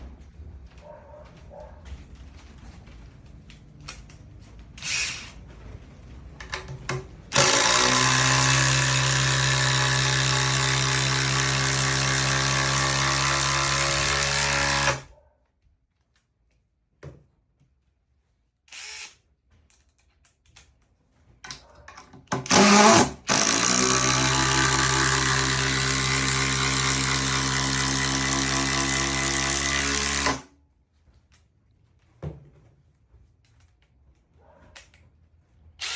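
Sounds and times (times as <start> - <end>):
impact driver running: 7.3 - 15.1, 22.3 - 30.5.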